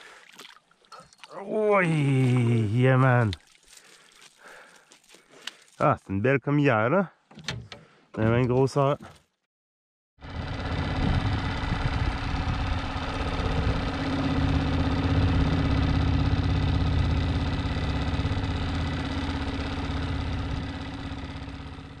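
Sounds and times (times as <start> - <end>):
engine running steadily: 10.2 - 22.0.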